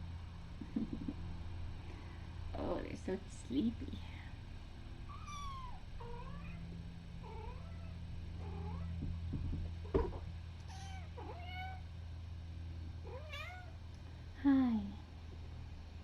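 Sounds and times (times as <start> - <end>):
steady low hum: 0.0 - 16.0
kittens mewing: 5.1 - 9.8.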